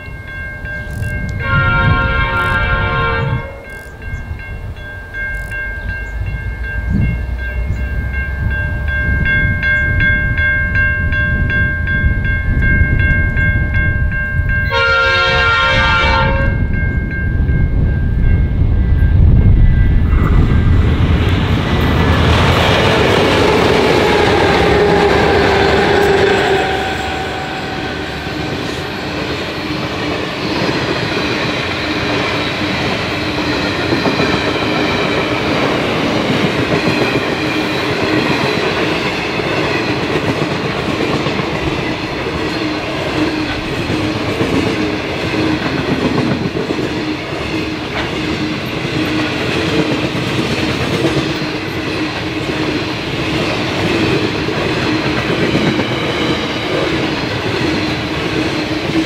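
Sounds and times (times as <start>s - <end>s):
diesel locomotive engine: 0.0s - 59.0s
train wheels rumbling on rails: 0.0s - 59.0s
faint high ringing: 24.1s - 30.0s
clickety-clack of wheels: 30.0s - 59.0s.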